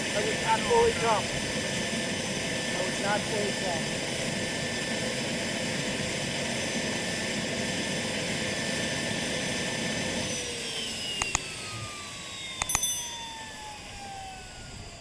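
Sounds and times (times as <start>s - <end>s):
model helicopter motor whining: 0.0s - 15.0s
sharp clicks: 11.2s - 11.6s, 12.6s - 13.0s.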